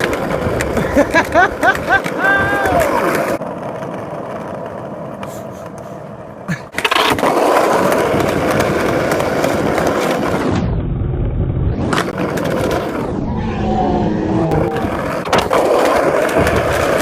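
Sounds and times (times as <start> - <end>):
skateboard clacks: 0.0 - 10.5, 14.7 - 17.0
skateboard wheels rolling on concrete: 0.0 - 17.0.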